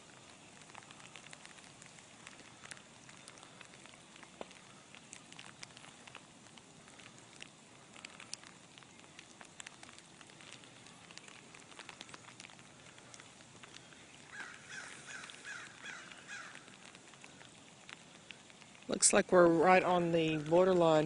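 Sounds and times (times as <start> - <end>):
sleet ticking on surfaces: 0.0 - 21.0
bird harsh calls: 13.8 - 16.7.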